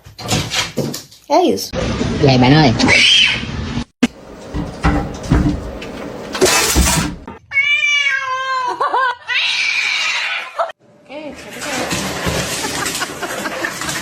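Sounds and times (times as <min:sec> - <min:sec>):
knocks: 0:04.5 - 0:07.3
cat meowing: 0:07.4 - 0:08.6.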